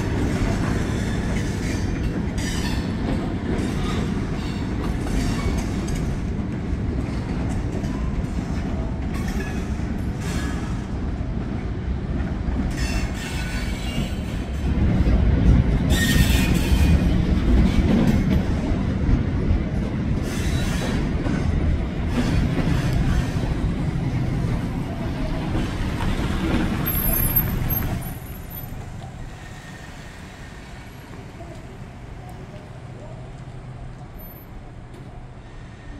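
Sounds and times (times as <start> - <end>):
freight train rolling past: 0.0 - 35.9
train wheels squealing: 0.6 - 6.1, 12.7 - 14.5, 15.9 - 18.2, 20.2 - 21.1, 26.5 - 31.1.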